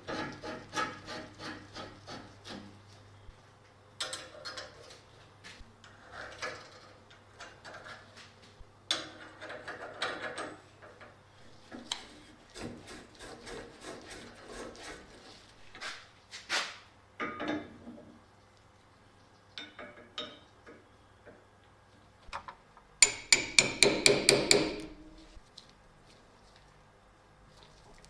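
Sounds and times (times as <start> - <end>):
rubbing or scraping by hand: 12.1 - 16.8.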